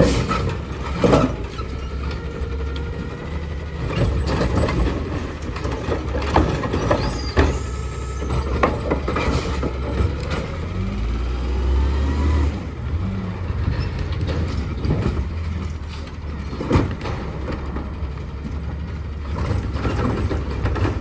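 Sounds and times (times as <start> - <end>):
diesel engine rumbling: 0.0 - 21.0.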